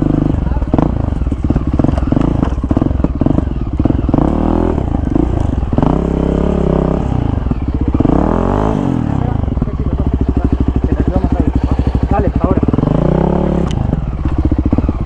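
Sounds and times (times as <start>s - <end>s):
engine clattering: 0.0s - 15.0s
motorcycle engine revving: 0.0s - 15.0s.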